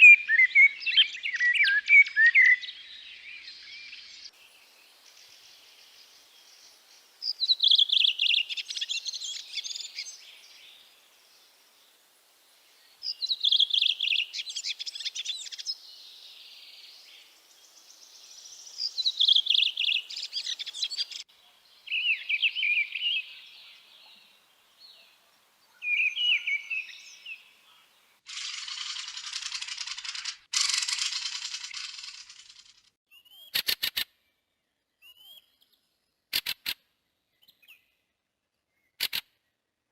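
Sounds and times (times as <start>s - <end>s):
bird singing: 0.0s - 12.0s, 12.6s - 33.6s, 34.2s - 36.4s, 37.0s - 39.7s
sharp clicks: 36.3s - 36.8s, 39.0s - 39.3s.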